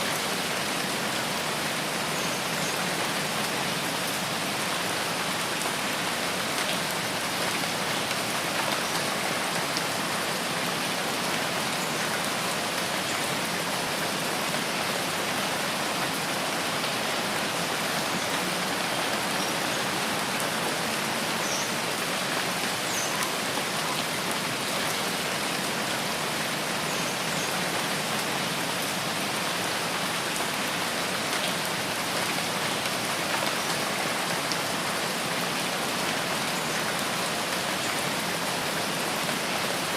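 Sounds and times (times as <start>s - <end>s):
rain on leaves and ground: 0.0s - 39.9s.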